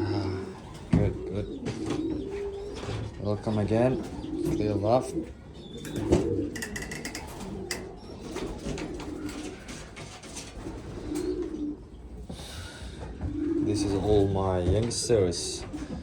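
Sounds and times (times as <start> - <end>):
pigeons cooing: 0.0 - 16.0
sharp clicks and taps: 5.8 - 7.9.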